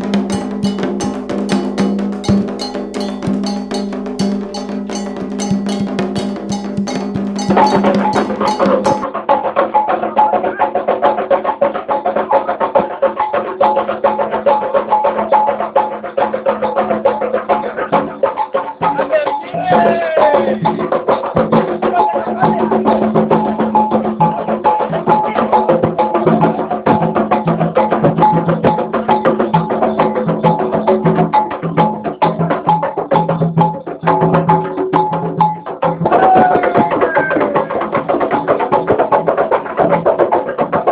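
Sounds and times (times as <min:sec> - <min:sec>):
drums playing fast rhythm: 0:00.0 - 0:40.9
voices singing: 0:17.5 - 0:23.3.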